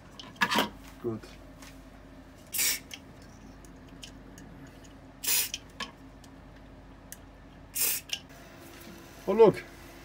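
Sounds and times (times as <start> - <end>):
fan humming: 0.0 - 10.0
short hissing bursts: 2.5 - 2.9, 5.2 - 5.6, 7.8 - 8.1.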